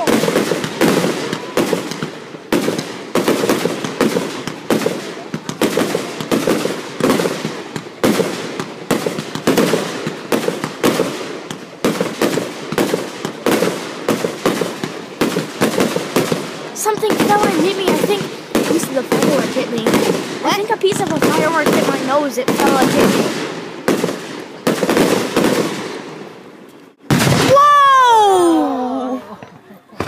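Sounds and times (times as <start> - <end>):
fireworks bangs: 0.0 - 28.2.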